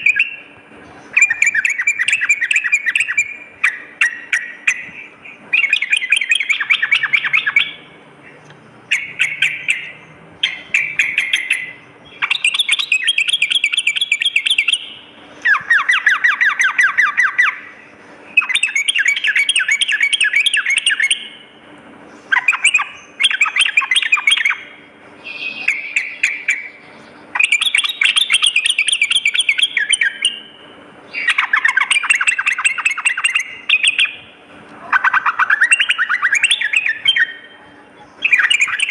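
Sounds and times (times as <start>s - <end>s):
bird singing chattering notes: 0.0s - 38.9s.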